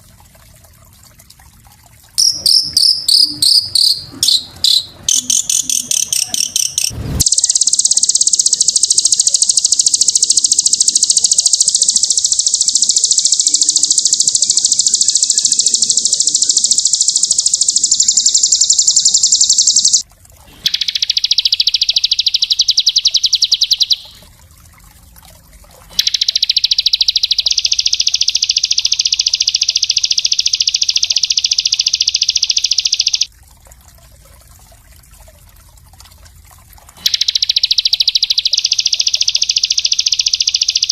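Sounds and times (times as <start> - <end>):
songbird high-pitched trill: 2.2 - 20.0, 20.7 - 24.2, 26.0 - 33.3, 37.0 - 40.9.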